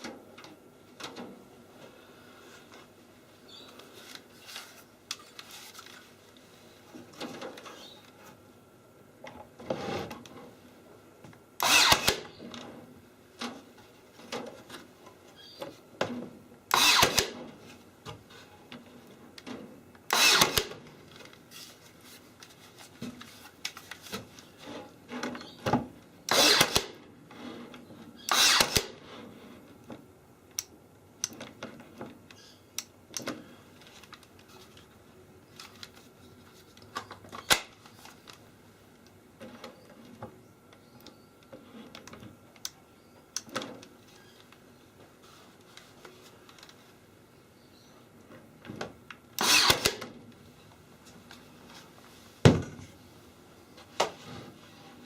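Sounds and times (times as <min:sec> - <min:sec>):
power drill running: 0:11.6 - 0:12.4, 0:16.7 - 0:17.3, 0:20.1 - 0:20.7, 0:26.3 - 0:26.9, 0:28.3 - 0:28.9, 0:49.4 - 0:50.0.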